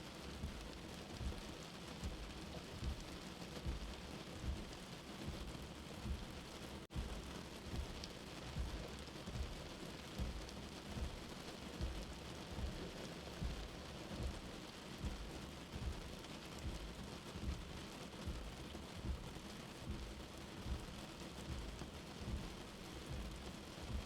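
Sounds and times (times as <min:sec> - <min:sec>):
rain heard from indoors: 0:00.0 - 0:24.0
soft heartbeat thumps: 0:00.2 - 0:24.0.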